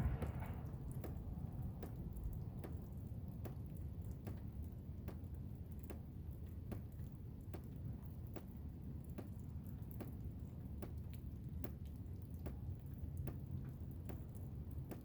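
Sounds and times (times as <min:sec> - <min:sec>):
blizzard wind rumbling: 0:00.0 - 0:02.5.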